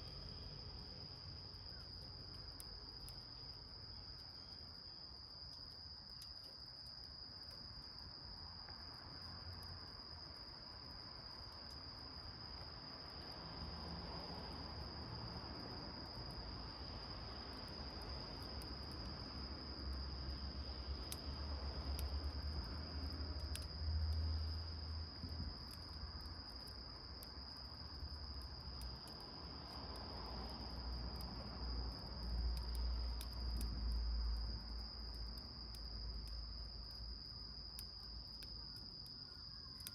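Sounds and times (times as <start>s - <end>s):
insects trilling: 0.0s - 6.7s, 10.7s - 39.9s
wood fire crackling: 0.0s - 8.0s, 9.5s - 39.9s.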